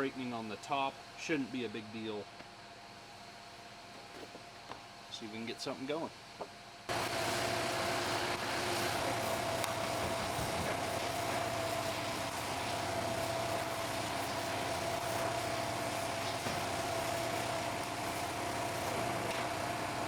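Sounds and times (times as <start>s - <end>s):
machine hiss: 6.9s - 20.0s
machine whining: 6.9s - 20.0s.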